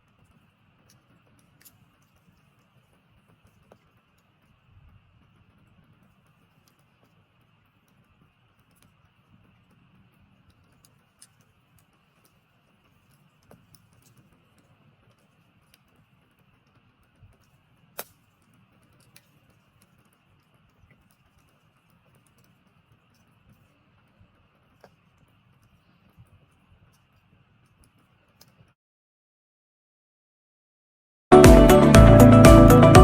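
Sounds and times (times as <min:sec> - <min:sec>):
campfire crackling: 0:00.0 - 0:28.7.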